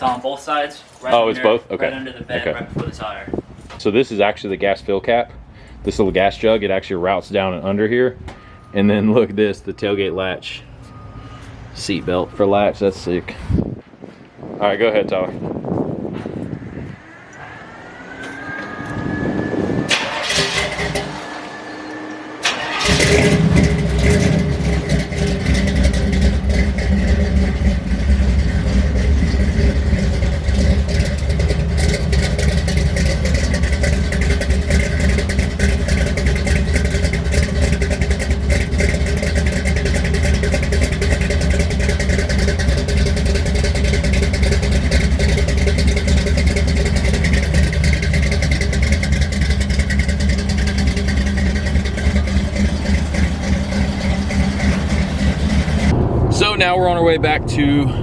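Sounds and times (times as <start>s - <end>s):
truck engine starting: 15.8s - 58.0s
starter whine with clicks: 16.9s - 25.3s.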